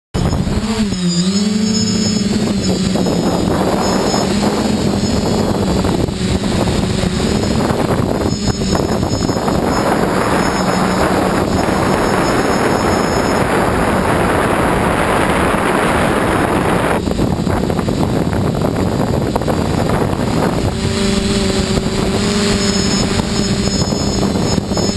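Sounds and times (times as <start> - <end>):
drone motors humming: 0.2 - 24.9
wind rush: 0.2 - 24.9.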